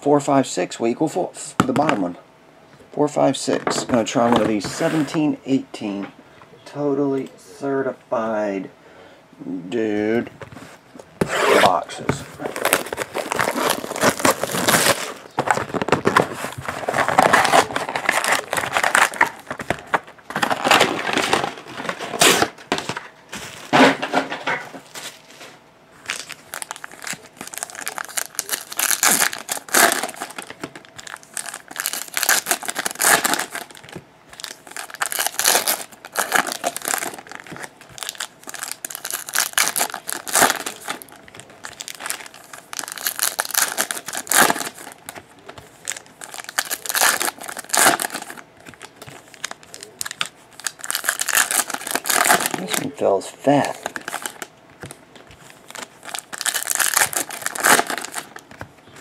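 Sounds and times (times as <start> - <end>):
plastic wrapping crinkling and tearing: 12.3 - 23.8, 26.0 - 58.6.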